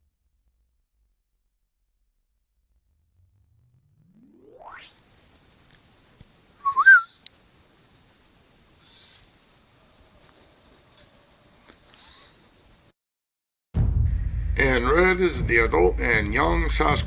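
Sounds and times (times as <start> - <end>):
faint hissy rustles: 5.0 - 12.9
bird whistled call: 6.6 - 7.3.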